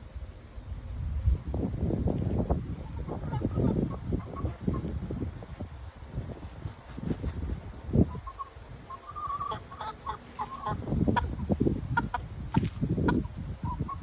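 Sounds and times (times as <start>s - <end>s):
chickens clucking: 2.5s - 5.0s, 6.7s - 14.0s.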